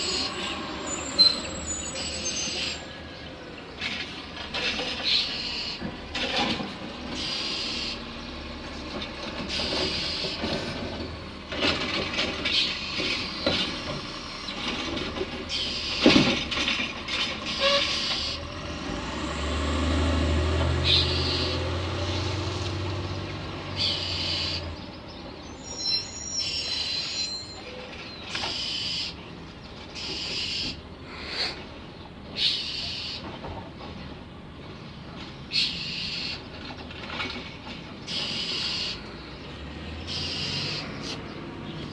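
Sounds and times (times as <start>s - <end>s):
distant low vehicle rumble: 0.0s - 41.9s
bird scolding calls: 38.1s - 39.0s, 40.0s - 41.2s.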